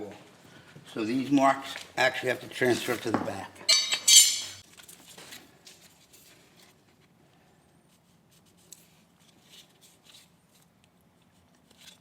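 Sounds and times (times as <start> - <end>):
metal tool clattering down: 3.7 - 4.6.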